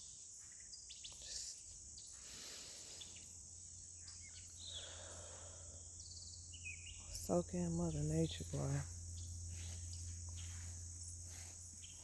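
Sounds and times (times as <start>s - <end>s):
bird chirps: 0.0s - 5.2s, 6.0s - 7.2s
crickets trilling: 0.0s - 12.0s.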